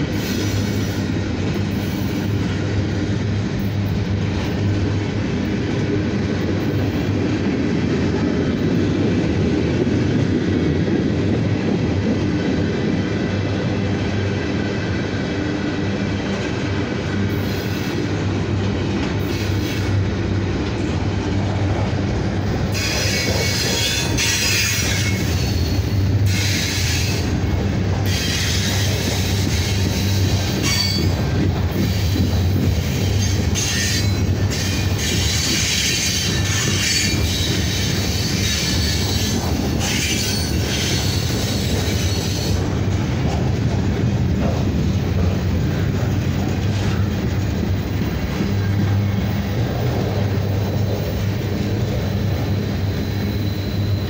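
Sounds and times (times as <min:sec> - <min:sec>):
train wheels squealing: 0:00.0 - 0:02.5, 0:19.2 - 0:20.0, 0:22.7 - 0:27.4, 0:28.0 - 0:42.8, 0:50.0 - 0:54.0
freight train wheels rumbling: 0:00.0 - 0:54.0.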